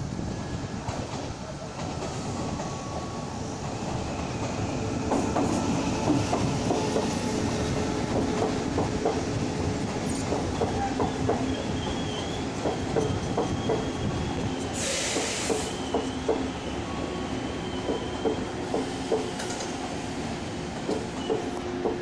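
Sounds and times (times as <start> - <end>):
train wheels clicking over rail joints: 3.6 - 16.6, 17.7 - 20.0, 20.7 - 22.0
short burst of hiss: 14.8 - 15.8.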